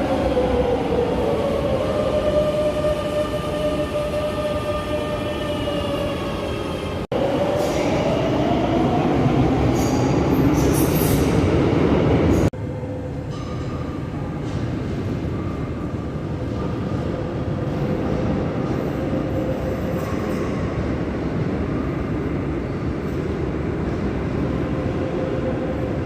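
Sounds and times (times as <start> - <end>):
train wheel squeals: 9.8 - 11.4.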